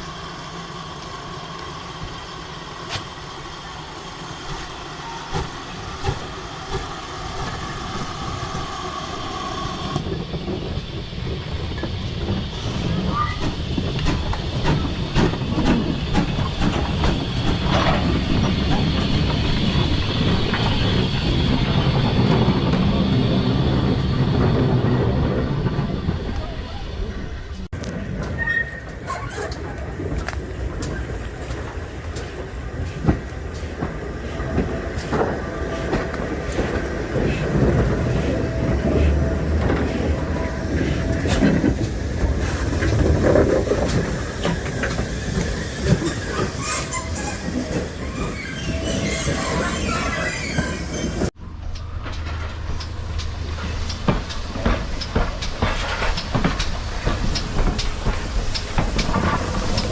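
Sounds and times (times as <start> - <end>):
train rumble: 0.0 - 59.9
train wheels clicking over rail joints: 4.4 - 26.5, 27.7 - 59.9.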